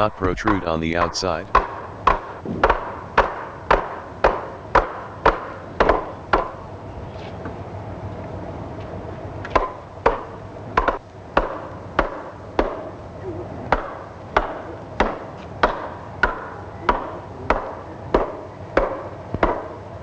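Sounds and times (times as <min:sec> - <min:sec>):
hammer knocking on wood: 0:00.4 - 0:06.6, 0:09.5 - 0:12.9, 0:13.7 - 0:19.8.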